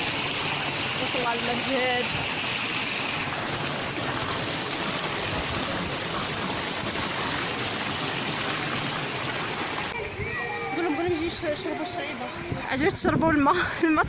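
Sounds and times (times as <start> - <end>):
spring water gushing: 0.0 - 10.4.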